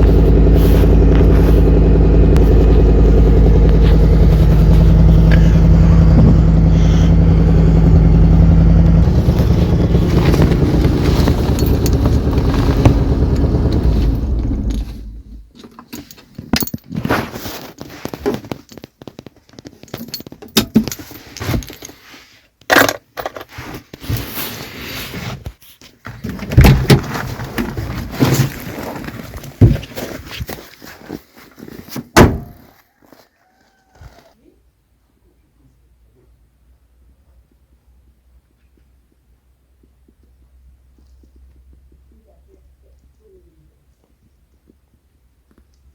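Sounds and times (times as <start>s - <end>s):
car engine running: 0.0s - 15.5s.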